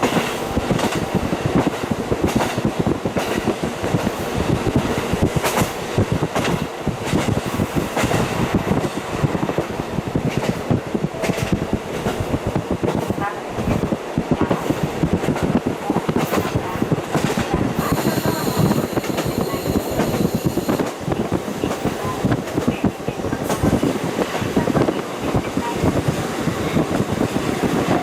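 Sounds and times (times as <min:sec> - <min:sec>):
train wheels clattering on rails: 0:00.0 - 0:28.0
high wheel squeal: 0:17.8 - 0:20.9.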